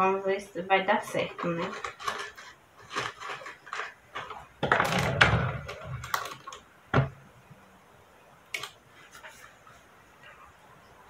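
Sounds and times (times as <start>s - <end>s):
rustling scrape: 1.0s - 4.6s, 8.9s - 10.0s.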